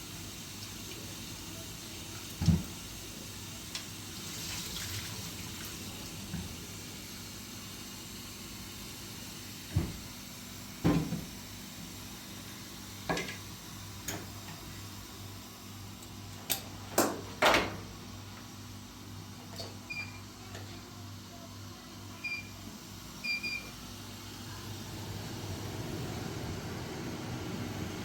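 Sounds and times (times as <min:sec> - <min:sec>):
steady low hum: 0:22.3 - 0:28.0.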